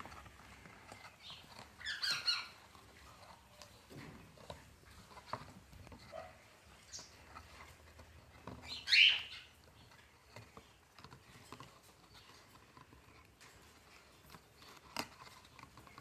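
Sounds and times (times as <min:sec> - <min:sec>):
taps and scratches: 0:00.0 - 0:16.0
parrot squawking: 0:08.7 - 0:09.5.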